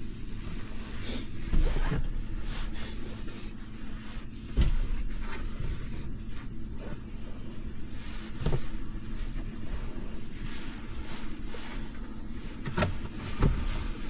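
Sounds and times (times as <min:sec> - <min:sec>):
low mechanical hum: 0:00.0 - 0:14.0
dull thumps: 0:04.4 - 0:05.9.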